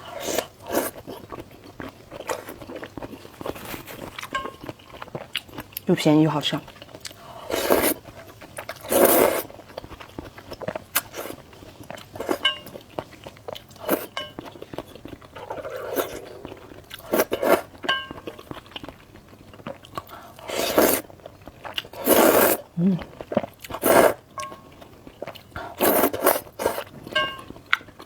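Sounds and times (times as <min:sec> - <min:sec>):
person chewing and crunching: 0:00.0 - 0:05.9, 0:06.6 - 0:28.0
noisy mouthfuls: 0:22.0 - 0:24.2.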